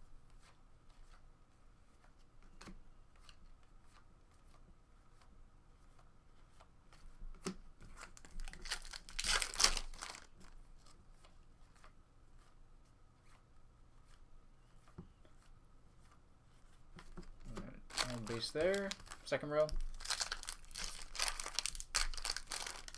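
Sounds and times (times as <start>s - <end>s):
foil wrapper tearing and crinkling: 8.1s - 10.3s, 17.9s - 22.9s.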